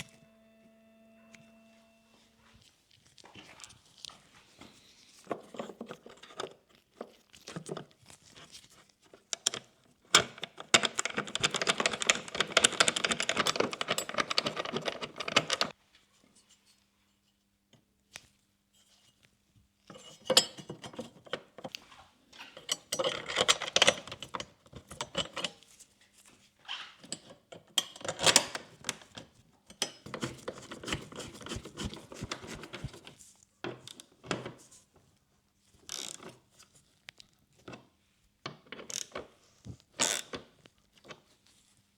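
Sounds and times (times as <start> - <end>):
small parts clicking and clinking: 9.4 - 15.7.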